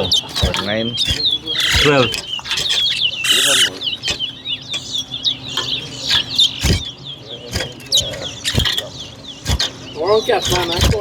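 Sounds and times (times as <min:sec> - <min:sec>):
finches chirping: 0:00.0 - 0:11.0
sharp knocks: 0:00.2 - 0:03.0, 0:06.1 - 0:06.9, 0:07.5 - 0:09.8, 0:10.4 - 0:11.0.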